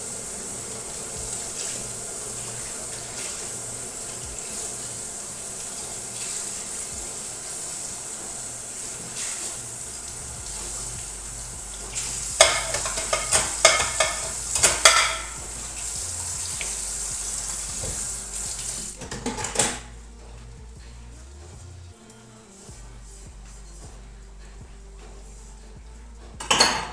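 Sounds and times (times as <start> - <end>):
steady hiss: 0.0 - 19.2
dishes and pots clattering: 11.8 - 15.7, 18.9 - 20.0, 26.4 - 26.9.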